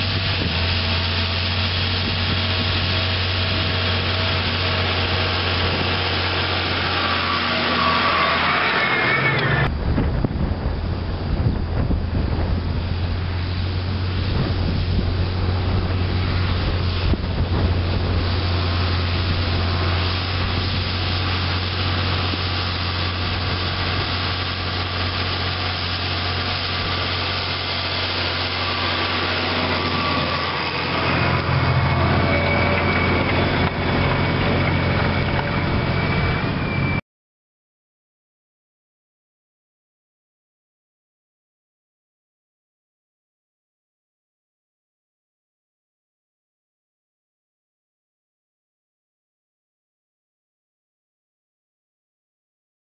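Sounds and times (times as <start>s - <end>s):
tractor engine low drone: 0.0s - 37.0s.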